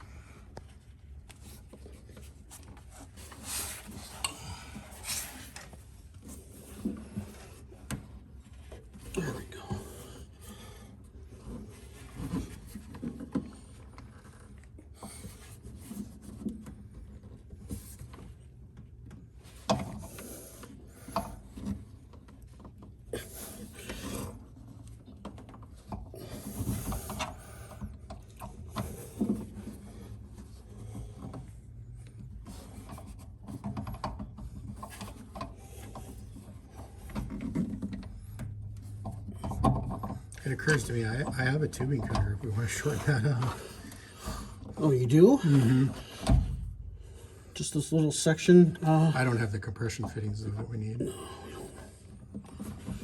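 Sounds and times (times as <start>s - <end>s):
tubing and tools on metal: 1.4s - 18.3s.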